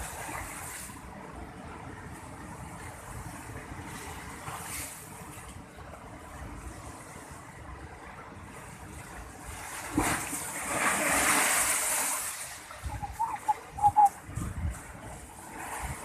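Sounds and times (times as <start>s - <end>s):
sea wave breaking: 9.0s - 14.4s
short sharp chirps: 13.0s - 14.1s.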